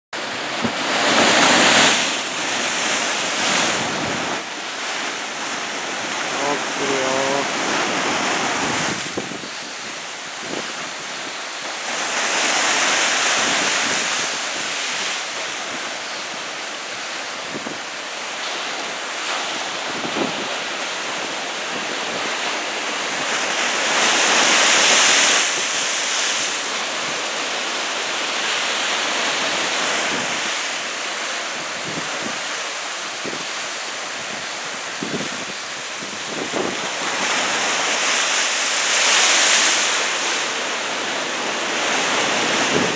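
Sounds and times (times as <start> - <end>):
heavy surf roaring: 0.2 - 42.9
wind buffeting microphone: 0.3 - 11.4, 34.2 - 37.7, 41.8 - 42.9.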